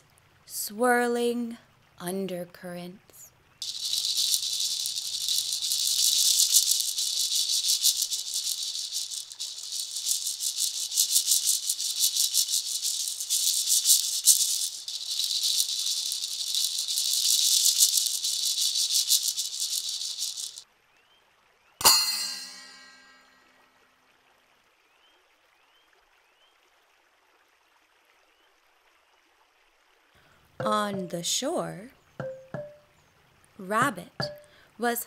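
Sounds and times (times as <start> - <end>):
rattle shaken steadily: 3.6 - 20.6, 30.6 - 31.4, 32.2 - 32.8, 33.6 - 34.6.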